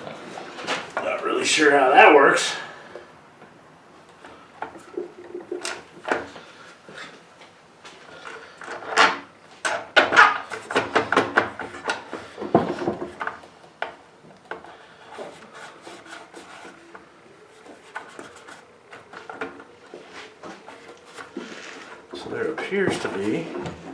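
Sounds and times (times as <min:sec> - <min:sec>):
rubbing scraping and knocking: 0:08.2 - 0:23.9.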